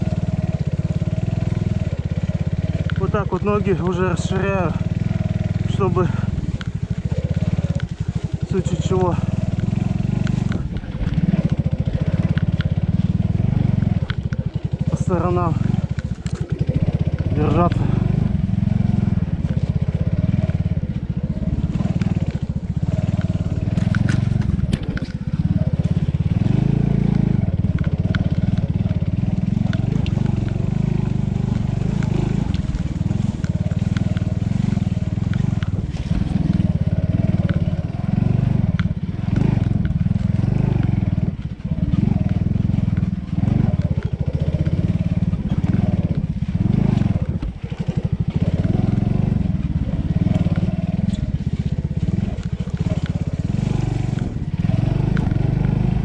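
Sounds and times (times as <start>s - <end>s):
dirt bike engine running: 0.0s - 56.0s
sharp clicks: 6.4s - 18.2s, 21.7s - 43.1s, 50.2s - 55.8s.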